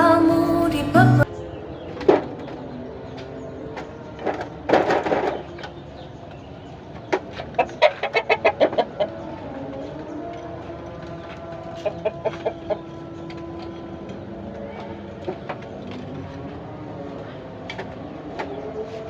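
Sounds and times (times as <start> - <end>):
chickens clucking: 3.2 - 16.5
chicken squawk: 7.6 - 9.2.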